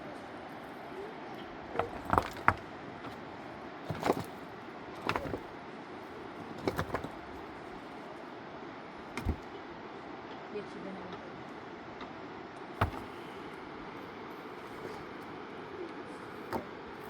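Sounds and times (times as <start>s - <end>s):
steady background hiss: 0.0s - 17.0s
sharp knocks and clatters: 1.8s - 3.2s, 3.9s - 4.4s, 5.0s - 5.5s, 6.4s - 7.3s, 9.2s - 9.5s, 12.8s - 13.2s.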